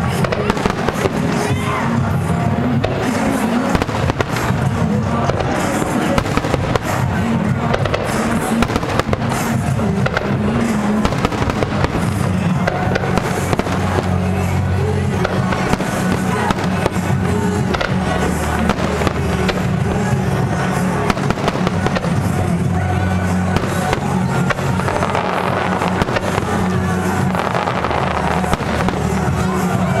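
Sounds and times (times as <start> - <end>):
fireworks bursting: 0.0 - 30.0
music over sound system: 0.0 - 30.0.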